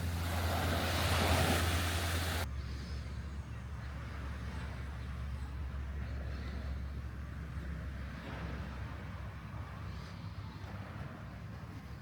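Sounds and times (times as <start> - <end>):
surf hiss: 0.0 - 2.5.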